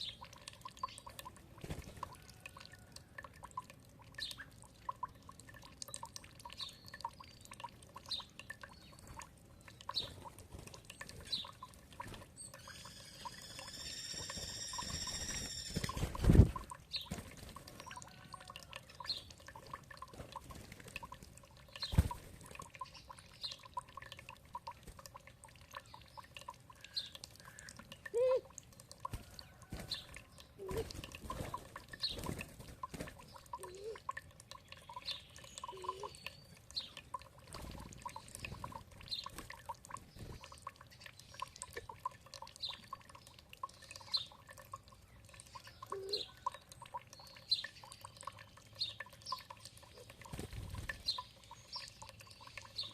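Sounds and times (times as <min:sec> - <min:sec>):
water dripping and trickling: 0:00.0 - 0:52.9
birds chirping: 0:12.4 - 0:16.1, 0:33.1 - 0:37.1.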